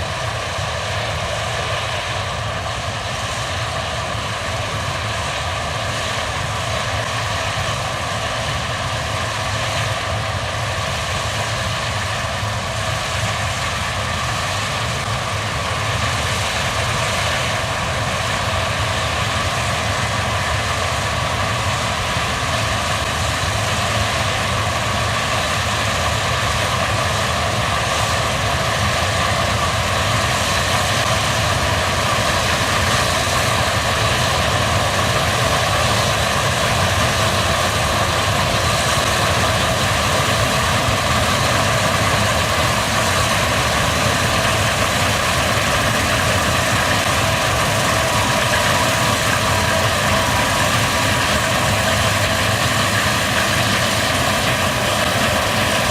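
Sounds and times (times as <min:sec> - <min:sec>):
combine harvester drone: 0:00.0 - 0:55.9
steady machine whine: 0:00.0 - 0:55.9.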